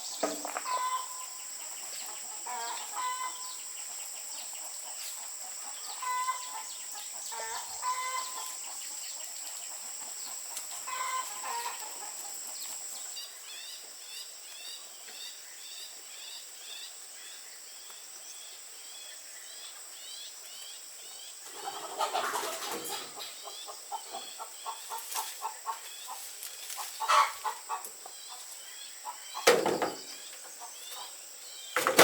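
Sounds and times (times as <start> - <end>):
chickens clucking: 0.0 - 13.1, 21.4 - 32.0.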